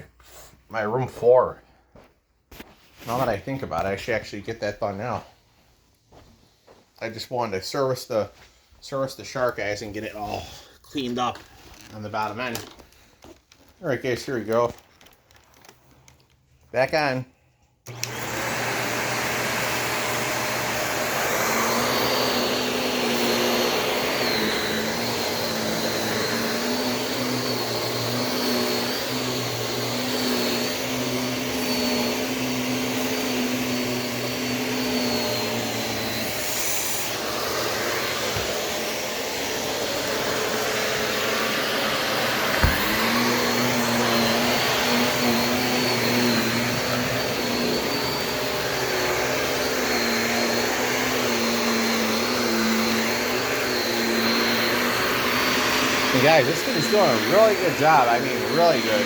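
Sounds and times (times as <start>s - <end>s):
vacuum cleaner on carpet: 17.9s - 59.0s.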